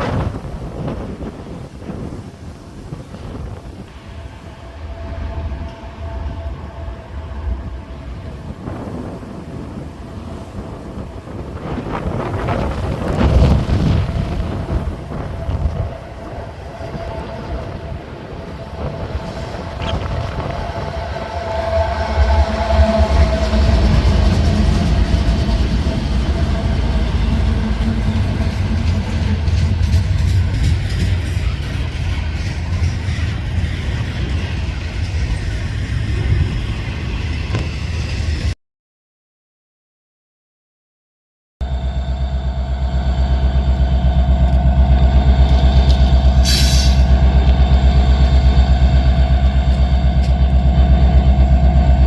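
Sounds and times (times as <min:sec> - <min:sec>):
freight train rumbling on rails: 0:00.0 - 0:38.6, 0:41.6 - 0:52.0
diesel locomotive idling: 0:03.6 - 0:37.4, 0:41.6 - 0:52.0
compressed air hiss: 0:46.4 - 0:47.1.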